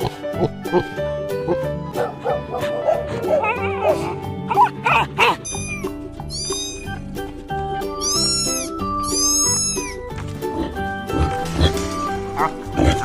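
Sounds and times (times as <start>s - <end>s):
background music: 0.0s - 13.0s
cat meowing: 5.3s - 7.1s, 8.0s - 10.0s.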